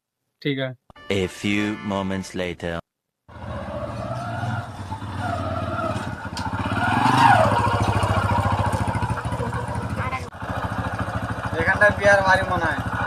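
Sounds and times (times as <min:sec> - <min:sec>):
motorcycle engine running: 0:03.3 - 0:13.0.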